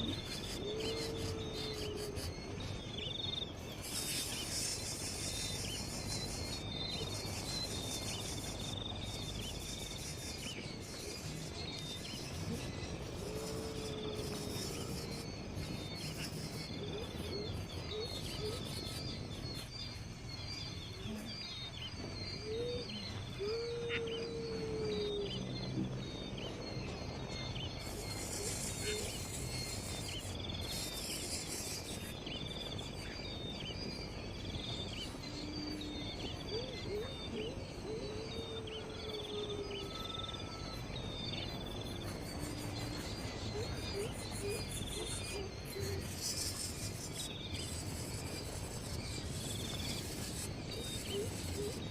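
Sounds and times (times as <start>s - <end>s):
birds chirping and calling: 0.0s - 51.9s
insects: 0.0s - 51.9s
low gliding bird calls: 20.9s - 34.2s.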